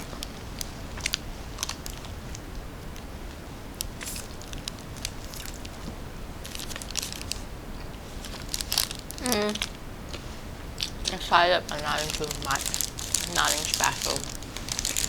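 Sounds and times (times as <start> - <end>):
crunching snack bites: 0.0 - 7.5, 8.2 - 10.2, 10.8 - 15.0
person humming: 9.2 - 9.6.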